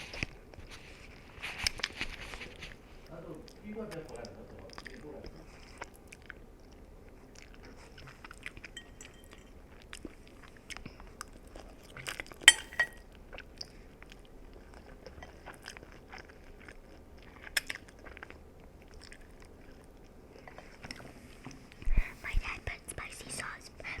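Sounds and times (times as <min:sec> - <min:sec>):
chewing noodles: 0:00.0 - 0:21.8
utensil clinking against a dish: 0:08.7 - 0:09.6, 0:12.5 - 0:13.0.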